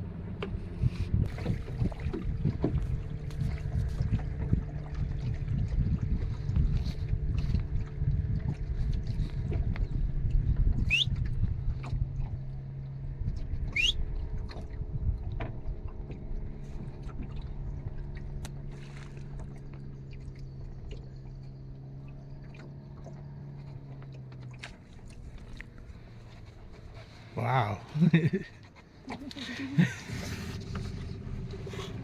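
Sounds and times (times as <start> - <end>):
outboard motor running: 0.0 - 32.0
rising whistle-like calls: 10.8 - 11.2, 13.7 - 14.0.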